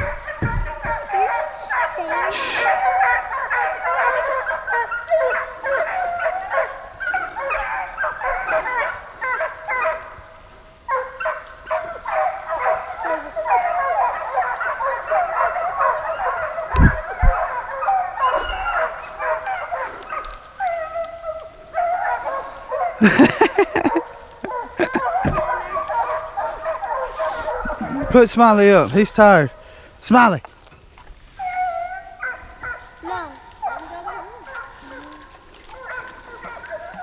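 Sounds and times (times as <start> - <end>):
pack of dogs baying: 0.0 - 30.0, 31.2 - 37.0.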